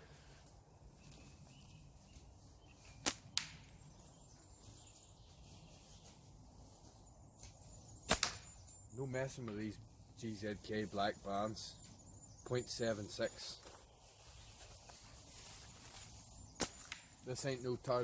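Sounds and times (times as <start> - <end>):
crack of slingshot shot: 8.0 - 8.5
slingshot band snap: 8.1 - 8.4.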